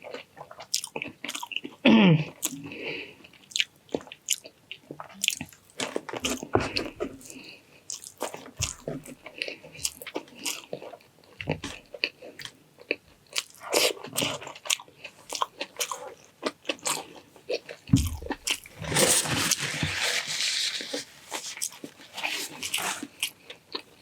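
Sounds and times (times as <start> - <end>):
food crunching: 0.0 - 24.0
person chewing: 0.0 - 24.0.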